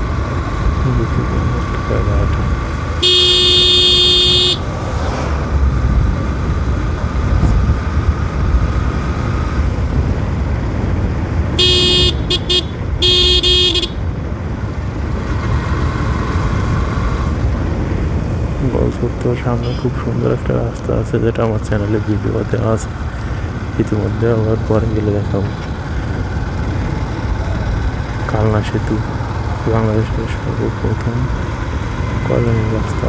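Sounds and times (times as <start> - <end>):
wind and road noise: 0.0 - 33.0
short horn beeps: 3.0 - 4.6, 11.6 - 14.0
vehicle horn blast: 3.0 - 4.7, 11.6 - 14.0.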